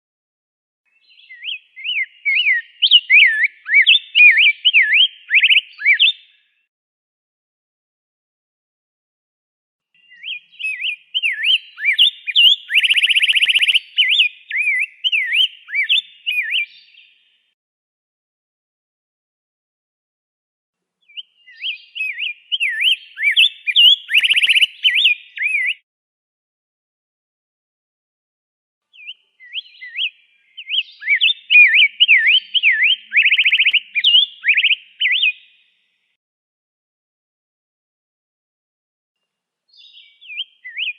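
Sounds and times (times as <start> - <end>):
bird warbling song: 0.9 - 6.6, 10.0 - 17.5, 21.0 - 25.8, 28.9 - 36.0, 39.7 - 40.9
fast bird trill: 10.1 - 16.6, 21.5 - 25.8, 29.0 - 35.4.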